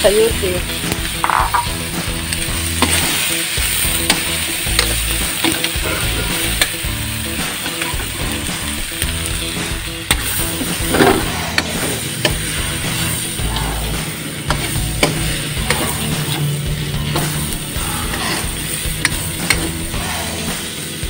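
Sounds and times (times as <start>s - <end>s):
food sizzling in hot oil: 0.0s - 21.0s
spatula scraping a pan: 10.1s - 19.9s.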